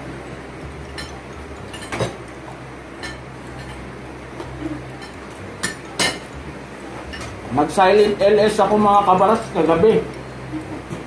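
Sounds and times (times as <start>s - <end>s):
steady low hum: 0.0s - 11.0s
cutlery clinking on plates: 1.0s - 2.2s.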